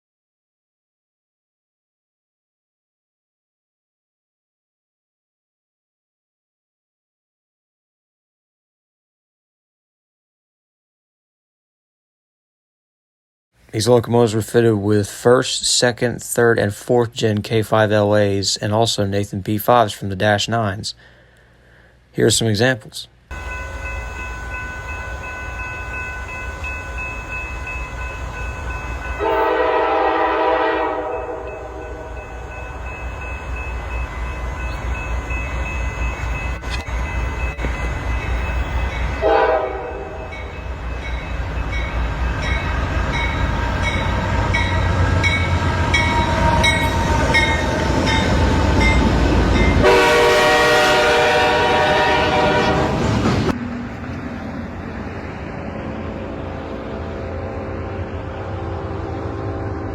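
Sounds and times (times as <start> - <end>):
passing train rumble: 23.3 - 59.9
locomotive air horn blasts: 29.2 - 32.4, 39.2 - 40.5, 49.8 - 53.1, 57.2 - 59.9.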